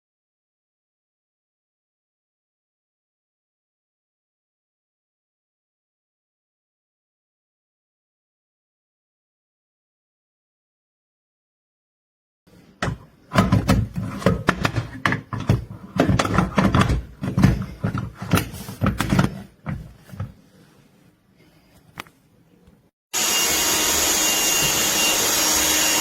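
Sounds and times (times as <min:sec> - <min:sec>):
handling knocks and clattering: 0:12.8 - 0:20.6
handheld vacuum whining: 0:23.1 - 0:26.0.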